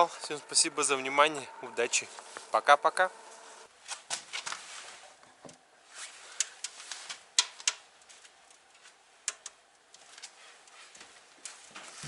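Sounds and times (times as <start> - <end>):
wood fire crackling: 6.1 - 12.0.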